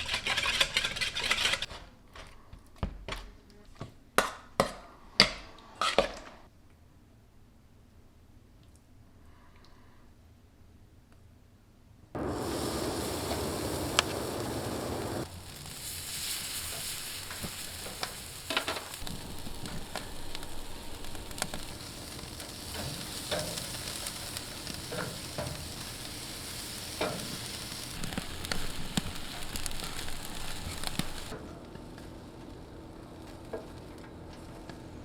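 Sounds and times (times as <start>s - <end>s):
fire popping and crackling: 12.2s - 31.4s
meat sizzling over open fire: 12.2s - 35.0s.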